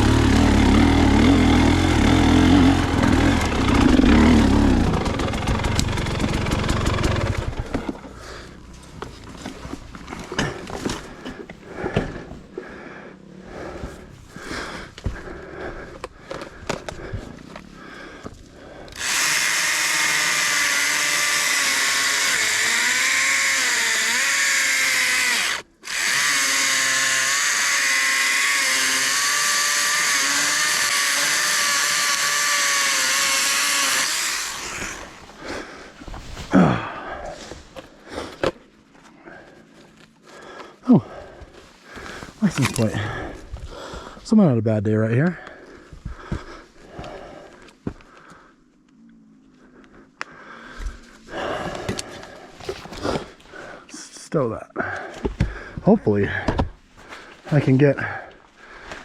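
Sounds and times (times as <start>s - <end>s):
battery saw whining: 0.0s - 7.9s, 18.9s - 35.5s.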